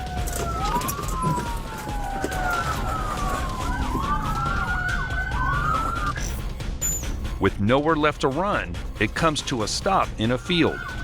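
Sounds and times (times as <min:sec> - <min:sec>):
engine and road rumble: 0:00.0 - 0:07.5
police sirens wailing: 0:00.0 - 0:11.0.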